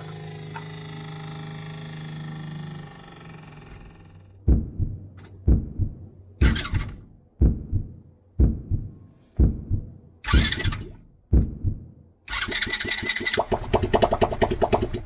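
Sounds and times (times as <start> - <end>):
heartbeat double thump: 4.4 - 12.0.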